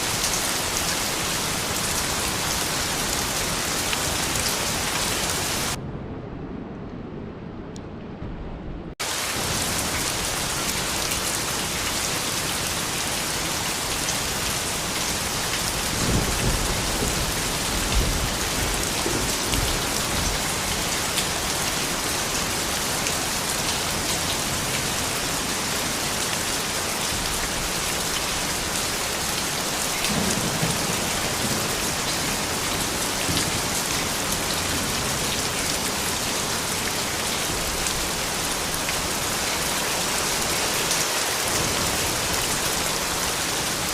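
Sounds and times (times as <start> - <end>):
rain pattering on surfaces: 0.0 - 5.8, 9.0 - 43.9
low thunder rumbles: 15.1 - 21.5, 30.1 - 35.3.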